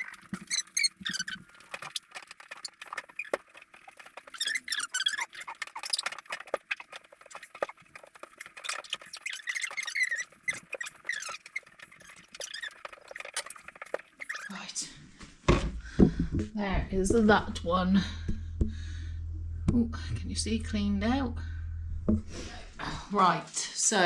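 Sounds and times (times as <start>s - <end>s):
cloth squeaking on shelf: 0.0s - 14.6s.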